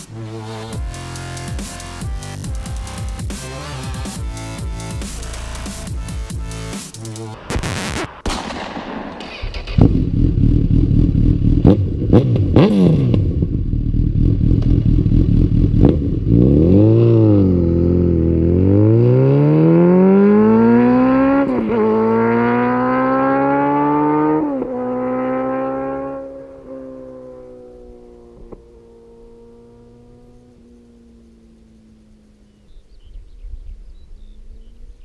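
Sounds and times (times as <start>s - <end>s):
motorcycle engine revving: 0.0s - 8.0s, 9.2s - 33.1s
exhaust pops: 7.0s - 13.6s, 14.4s - 16.1s.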